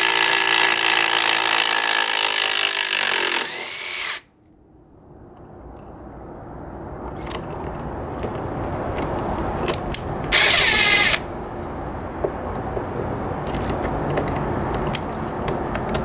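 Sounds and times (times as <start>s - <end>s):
impact driver hammering: 0.0s - 4.2s, 10.4s - 11.2s
sharp clicks: 9.8s - 11.2s.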